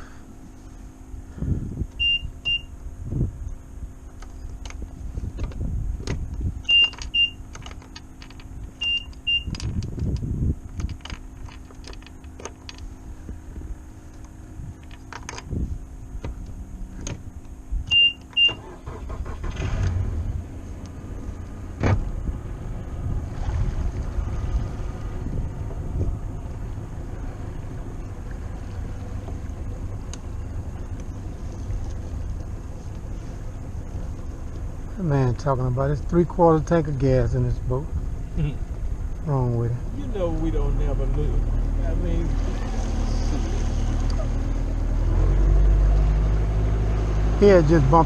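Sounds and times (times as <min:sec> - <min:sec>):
boat motor rumble: 0:00.0 - 0:48.0
short high beeps: 0:02.0 - 0:02.7, 0:08.8 - 0:09.5, 0:17.9 - 0:18.8.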